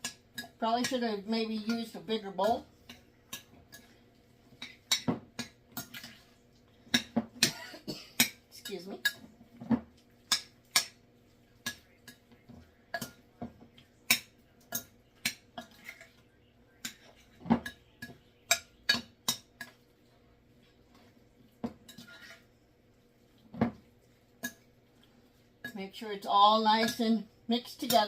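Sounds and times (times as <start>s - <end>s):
utensil clinking against a bowl: 0.0s - 6.3s, 6.9s - 16.2s, 16.8s - 19.8s, 23.6s - 24.7s, 26.8s - 28.0s.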